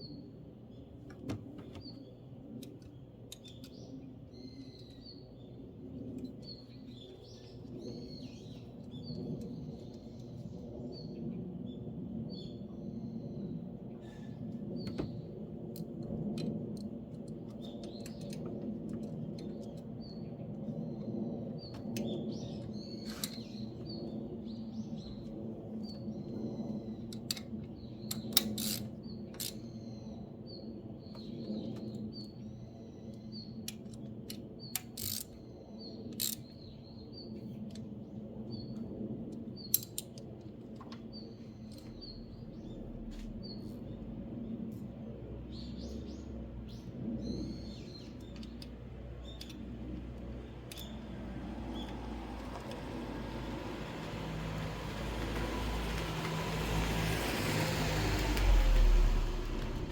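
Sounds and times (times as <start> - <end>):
small birds chirping: 0.0 - 16.0, 41.0 - 59.9.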